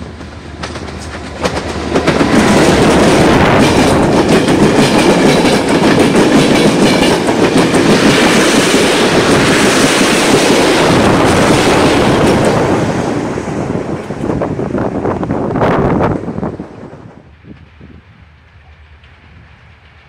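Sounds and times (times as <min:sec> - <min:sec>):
wheels clicking over rail joints: 0:00.0 - 0:10.5
train wheels rumbling on rails: 0:00.0 - 0:20.0.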